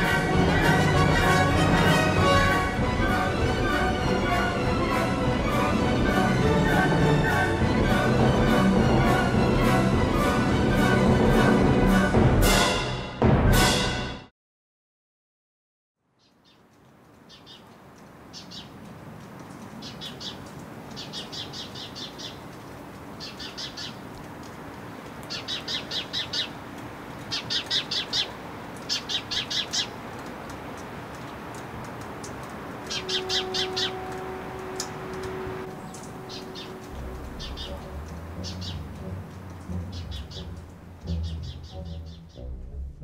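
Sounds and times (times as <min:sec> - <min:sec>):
street background noise: 0:16.3 - 0:42.7
birds chirping in rapid trills: 0:18.3 - 0:18.8, 0:19.7 - 0:22.5, 0:23.2 - 0:24.1, 0:25.2 - 0:26.6, 0:27.2 - 0:30.0, 0:32.8 - 0:42.5.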